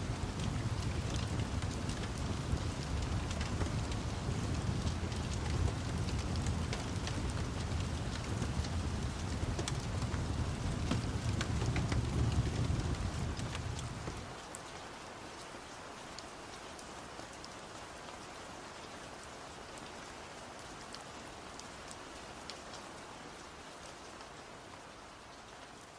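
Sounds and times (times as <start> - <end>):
low rumble of thunder: 0.0 - 14.4
steady rain hiss: 0.0 - 25.9.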